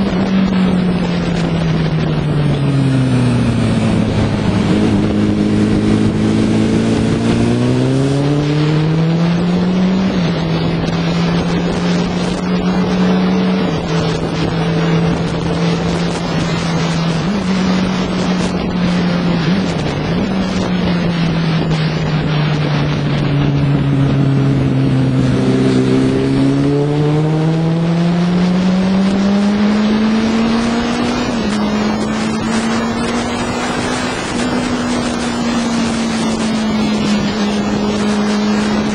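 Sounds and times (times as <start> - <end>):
motorcycle engine revving: 0.0 - 38.9
wind on microphone: 0.0 - 38.9.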